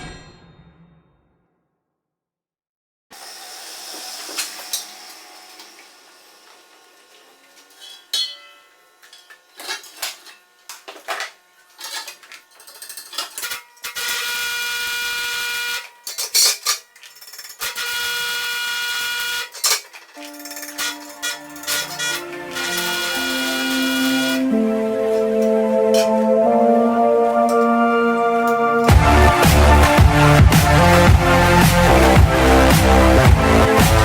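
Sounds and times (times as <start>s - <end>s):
small power tool running: 3.1s - 26.0s, 28.8s - 34.0s
metal tools clinking: 7.6s - 14.4s, 15.8s - 18.0s, 19.4s - 24.2s, 25.0s - 26.2s.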